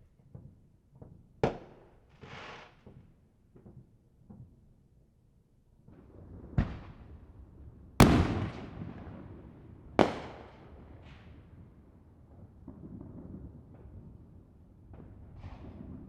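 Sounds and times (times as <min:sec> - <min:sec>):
distant fireworks booming: 0:08.0 - 0:09.4.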